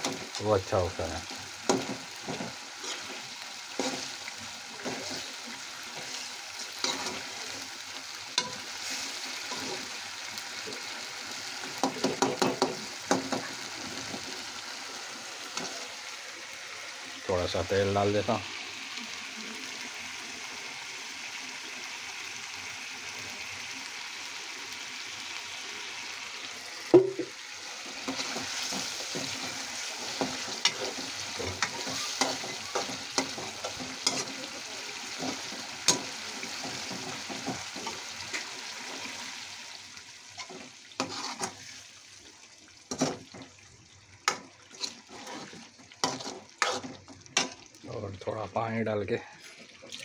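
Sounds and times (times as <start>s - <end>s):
food sizzling in oil: 0.0s - 50.0s
metal spoon scraping a pan: 1.6s - 7.6s, 8.4s - 10.0s, 15.5s - 16.0s, 27.8s - 38.5s, 40.4s - 41.8s, 44.3s - 47.7s.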